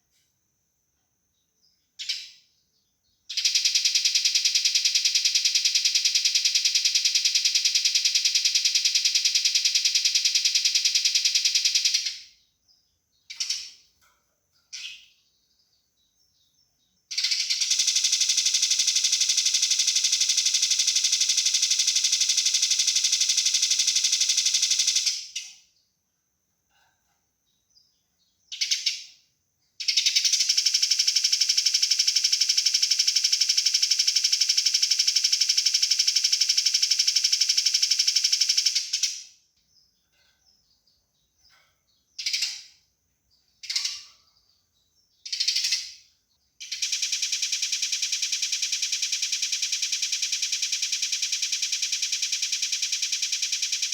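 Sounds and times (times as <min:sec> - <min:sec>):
sparrow rattling call: 0:13.3 - 0:13.9, 0:14.7 - 0:15.2, 0:42.2 - 0:42.8, 0:43.4 - 0:44.5, 0:45.2 - 0:53.9.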